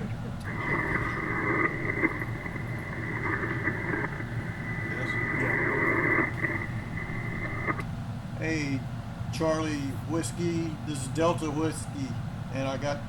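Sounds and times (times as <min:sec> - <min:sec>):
steady high-pitched whistle: 0:00.4 - 0:07.8
radio static and band noise: 0:00.4 - 0:07.9.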